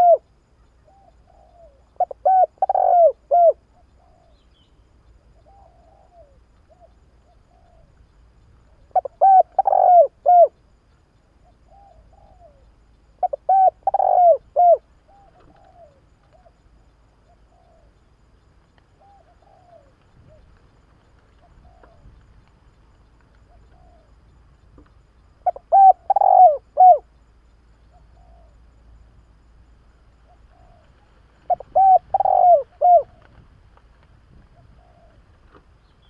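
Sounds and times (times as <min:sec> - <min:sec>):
dove cooing: 0:00.0 - 0:04.6, 0:05.4 - 0:08.0, 0:08.7 - 0:10.6, 0:11.4 - 0:16.6, 0:17.2 - 0:18.0, 0:18.9 - 0:20.5, 0:21.2 - 0:22.3, 0:23.4 - 0:24.2, 0:25.4 - 0:27.1, 0:27.9 - 0:28.6, 0:30.2 - 0:33.4, 0:34.4 - 0:36.0.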